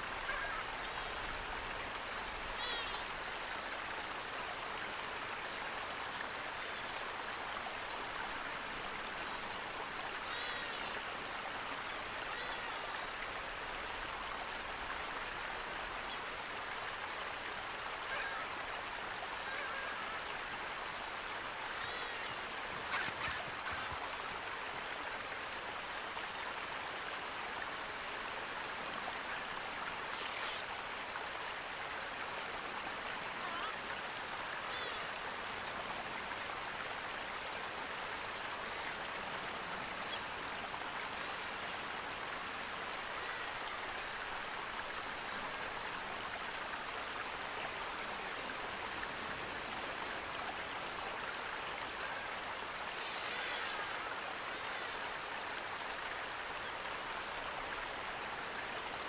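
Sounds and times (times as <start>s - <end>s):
running water rushing: 0.0s - 59.0s
faint bird calls: 0.2s - 1.2s, 2.5s - 3.1s, 18.0s - 18.5s, 19.4s - 20.5s, 21.7s - 24.1s, 33.3s - 33.9s, 52.0s - 55.2s.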